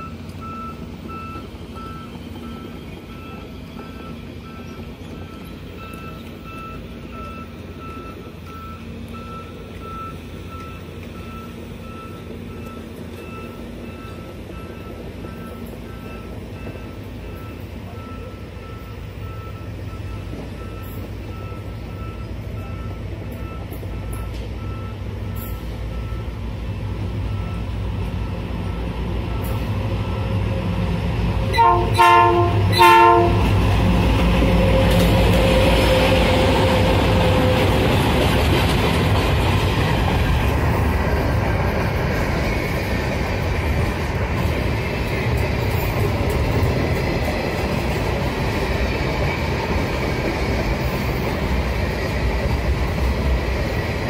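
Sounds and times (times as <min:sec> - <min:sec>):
diesel locomotive engine rumble: 0:00.0 - 0:54.0
train horn blasts: 0:31.4 - 0:33.7.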